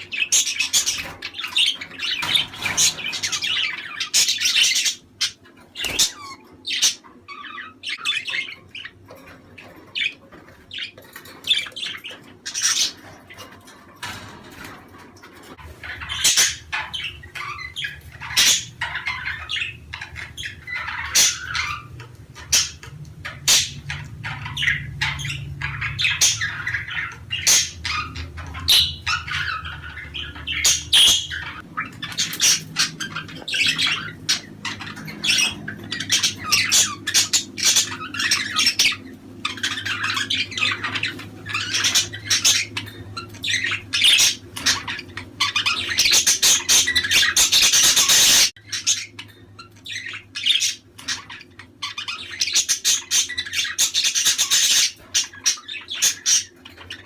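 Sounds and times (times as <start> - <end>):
budgerigars chattering: 0.0 - 57.0
steady low hum: 10.2 - 47.6.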